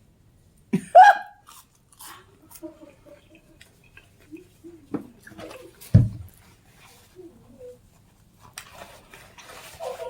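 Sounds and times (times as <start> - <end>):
chewing crunchy food: 1.4 - 4.5.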